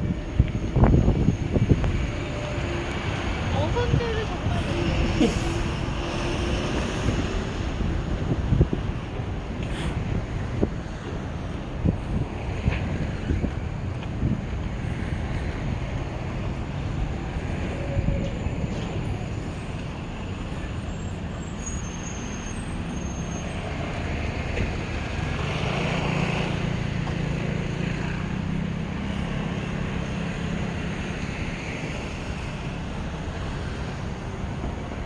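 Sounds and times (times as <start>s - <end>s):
passing engine hum: 0.0s - 20.8s, 22.7s - 35.0s
wind rumbling on microphone: 0.0s - 21.4s
street traffic: 0.0s - 35.0s.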